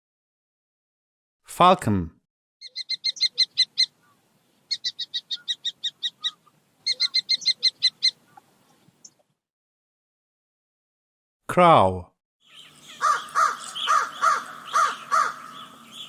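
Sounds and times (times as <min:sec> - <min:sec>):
falcon calling sharp notes: 0:02.6 - 0:08.5, 0:12.5 - 0:16.0.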